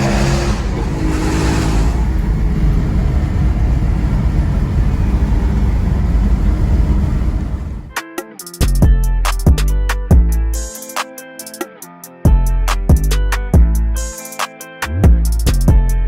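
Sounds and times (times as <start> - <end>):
car engine revving: 0.0 - 7.9
deep exhaust rumble: 0.0 - 7.9
plucked guitar music: 7.9 - 16.0.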